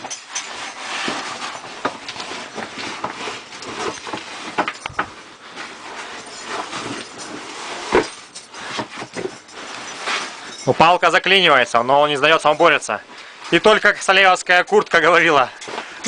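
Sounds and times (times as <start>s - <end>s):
climber scraping and knocking on rock: 0.0s - 10.9s.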